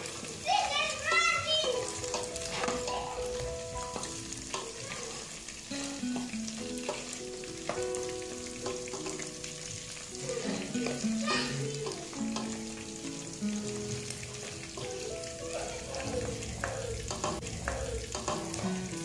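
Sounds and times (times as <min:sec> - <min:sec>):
beef and onions sizzling: 0:00.0 - 0:19.0
quiet melody: 0:05.6 - 0:19.0.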